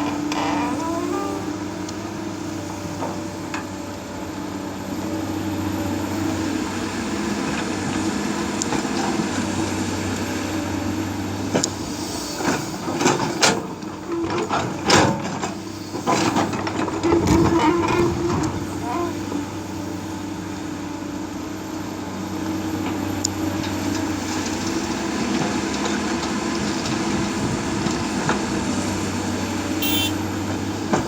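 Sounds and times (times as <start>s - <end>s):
excavator diesel engine humming: 0.0s - 31.0s.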